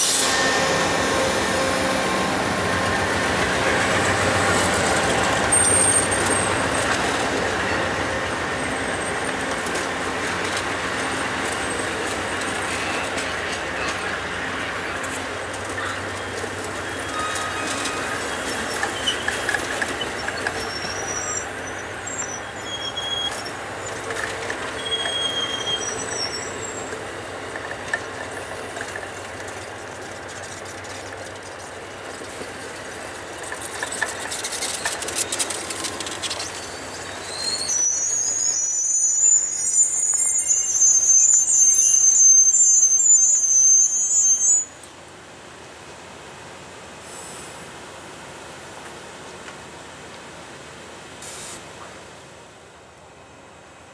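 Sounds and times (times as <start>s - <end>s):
high-pitched wheel squeal: 0.0s - 6.9s, 15.8s - 23.6s, 24.7s - 27.0s, 36.2s - 44.8s
railroad cars rumbling: 0.0s - 53.9s.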